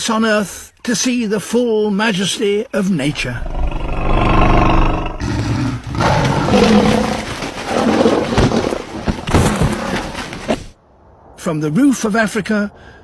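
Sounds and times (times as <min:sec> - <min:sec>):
large animal roaring: 0:03.1 - 0:08.3.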